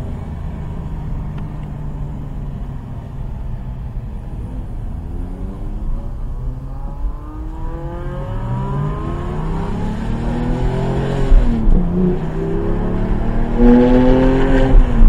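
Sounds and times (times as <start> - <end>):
car engine accelerating hard: 4.2 - 15.0.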